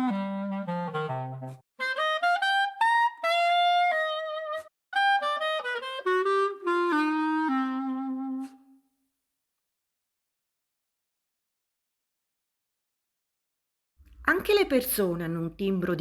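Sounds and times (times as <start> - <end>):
solo wind instrument melody: 0.0 - 8.9.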